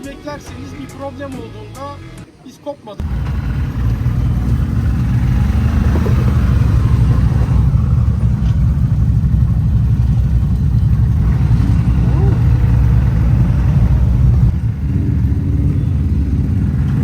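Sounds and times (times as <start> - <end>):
off-road vehicle engine rumbling: 0.0 - 17.0.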